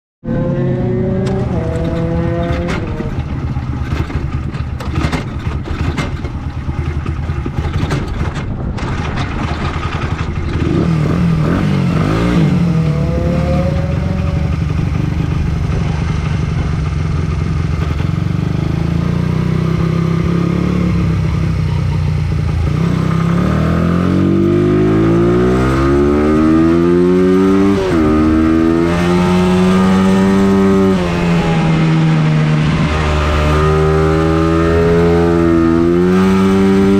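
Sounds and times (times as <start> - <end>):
race engine revving: 0.2 - 3.2, 10.5 - 16.6, 22.3 - 36.9
engine rattling: 1.0 - 36.9.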